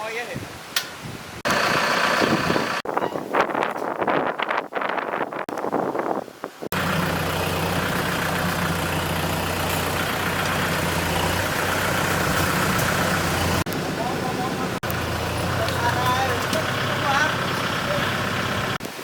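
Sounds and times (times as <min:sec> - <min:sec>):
tractor diesel engine running: 0:01.5 - 0:02.9, 0:06.7 - 0:18.8.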